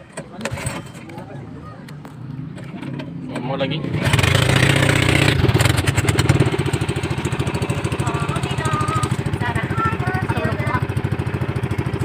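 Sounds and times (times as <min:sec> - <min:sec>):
boat engine chugging: 0:04.0 - 0:12.0.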